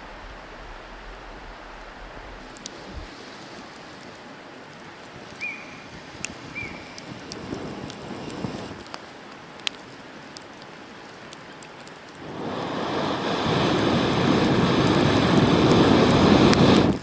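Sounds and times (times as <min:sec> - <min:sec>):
campfire crackling and popping: 0:00.0 - 0:17.0
rushing noise: 0:12.2 - 0:17.0.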